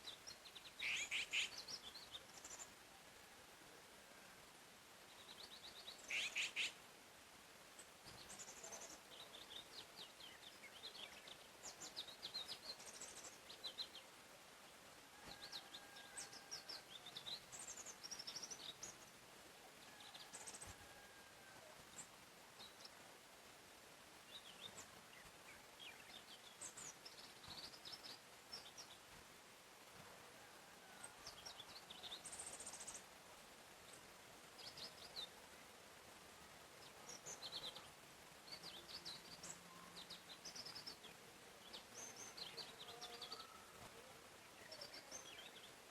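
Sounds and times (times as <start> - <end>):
faint steady hiss: 0.0 - 45.9
songbirds chirping and trilling: 0.0 - 45.9.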